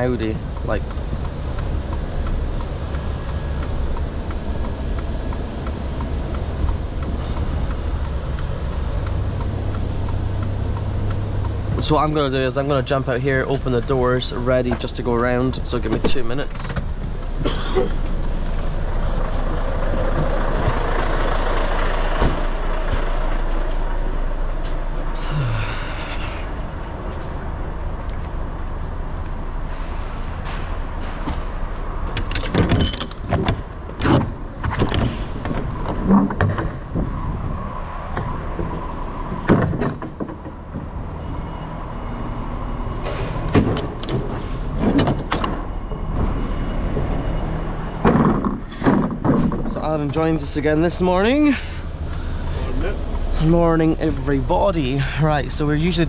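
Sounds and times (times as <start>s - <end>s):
diesel engine idling: 0.0s - 32.1s, 45.6s - 56.0s
sharp knocks and clanks: 30.4s - 37.3s, 38.1s - 41.0s, 48.0s - 50.4s.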